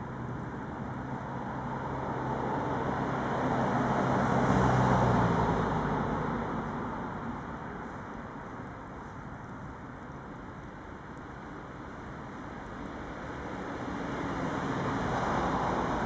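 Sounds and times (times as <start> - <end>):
vehicle passing by: 1.2 - 7.5, 13.8 - 16.0.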